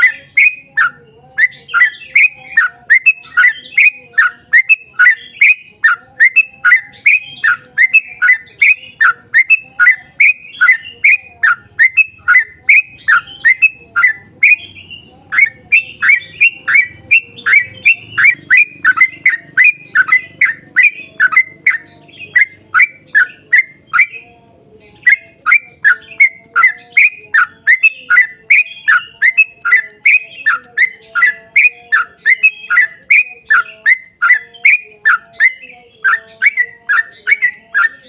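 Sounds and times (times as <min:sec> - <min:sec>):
bulbul calling in rapid notes: 0:00.0 - 0:38.0.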